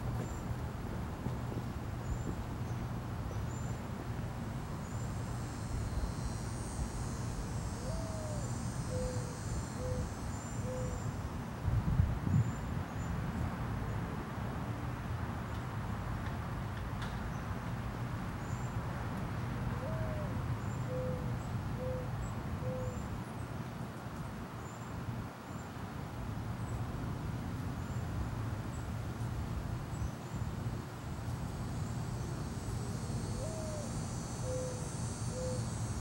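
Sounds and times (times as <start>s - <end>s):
bird cooing: 7.8s - 11.0s, 19.8s - 20.3s, 20.9s - 23.0s, 33.4s - 35.6s.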